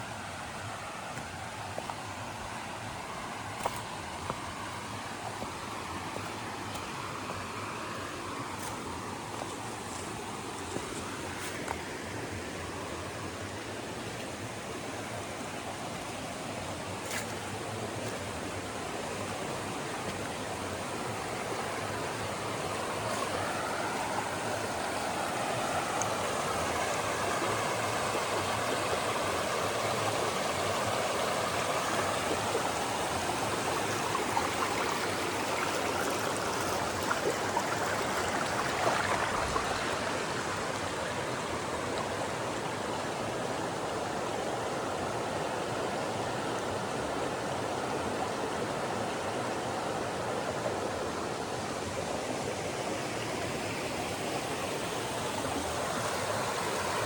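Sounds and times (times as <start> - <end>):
river rushing over rocks: 0.0 - 57.0.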